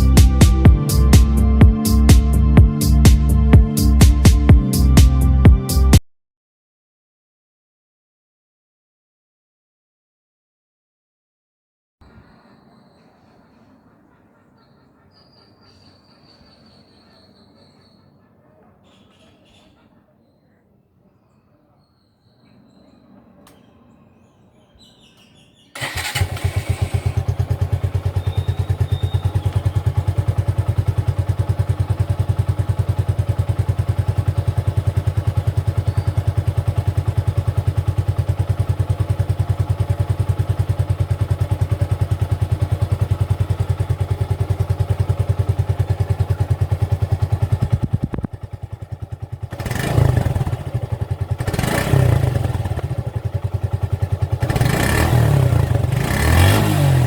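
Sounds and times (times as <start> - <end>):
motorcycle exhaust idling: 25.8 - 57.0
motorcycle throttle blips: 25.8 - 57.0.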